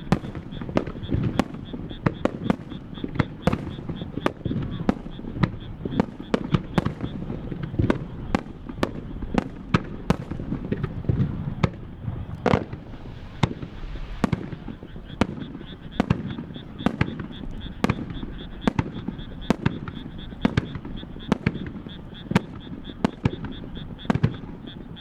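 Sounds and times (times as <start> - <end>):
fireworks bursting: 0.0 - 24.9
low rumble: 12.3 - 15.2.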